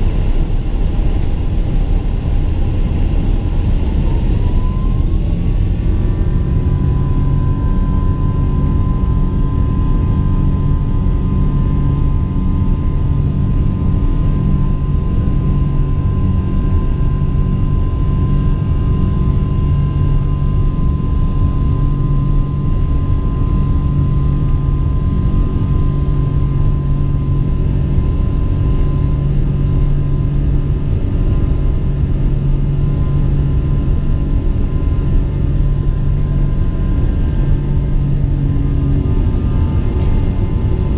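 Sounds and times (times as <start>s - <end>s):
high engine whine: 0.0s - 40.9s
jet engine rumble in cabin: 0.0s - 40.9s.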